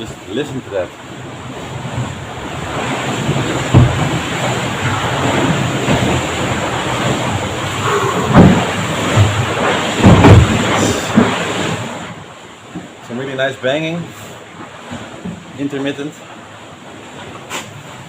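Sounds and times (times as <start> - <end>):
water rushing along hull: 0.0 - 18.0
bow slamming into waves: 1.2 - 13.0, 17.1 - 18.0.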